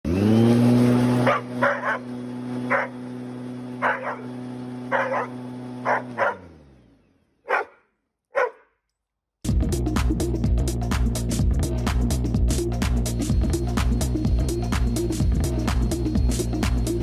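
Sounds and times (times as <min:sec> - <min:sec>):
vacuum cleaner motor hum: 0:00.1 - 0:07.4
dog barking: 0:01.2 - 0:02.1, 0:02.7 - 0:03.0, 0:03.8 - 0:04.3, 0:04.9 - 0:06.5, 0:07.4 - 0:08.8.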